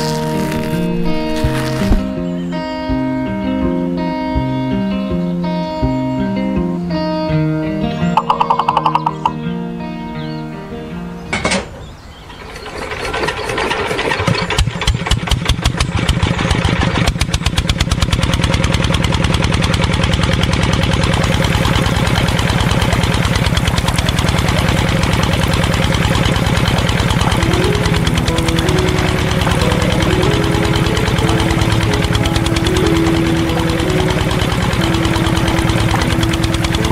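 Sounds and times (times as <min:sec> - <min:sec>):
small engine starting and running: 0:00.0 - 0:02.3, 0:08.2 - 0:09.4, 0:12.1 - 0:36.9.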